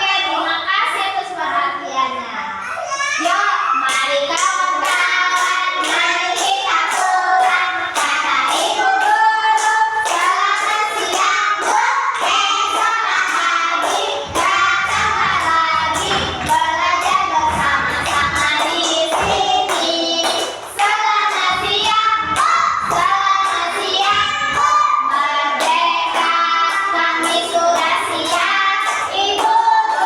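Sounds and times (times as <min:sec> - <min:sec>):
children singing: 0:02.9 - 0:30.0
sharp rhythmic beats: 0:03.9 - 0:30.0
low thumps: 0:12.6 - 0:24.9.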